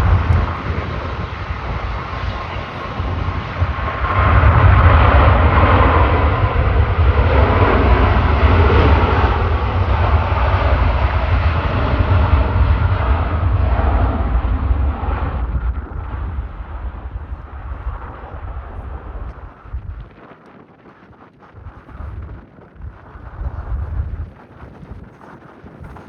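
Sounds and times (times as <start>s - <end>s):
jet airliner passing: 0.0s - 20.1s.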